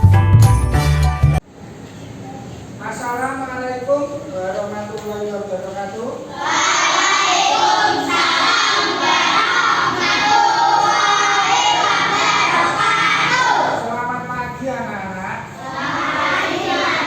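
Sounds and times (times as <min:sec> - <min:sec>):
children singing in unison: 0:06.3 - 0:13.8, 0:15.6 - 0:17.0.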